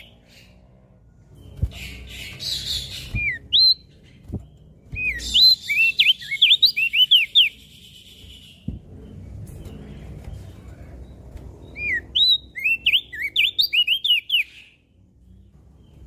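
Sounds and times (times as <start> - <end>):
bird singing: 0.0 - 16.0
low thumps: 8.6 - 10.4.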